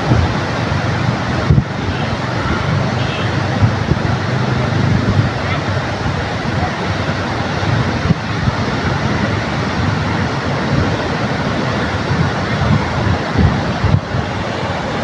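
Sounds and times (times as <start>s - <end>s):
ocean surf washing ashore: 0.0s - 15.0s
wind buffeting microphone: 0.0s - 15.0s.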